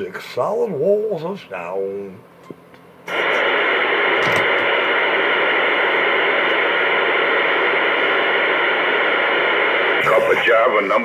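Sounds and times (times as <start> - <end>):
radio static hiss: 3.1 - 11.0.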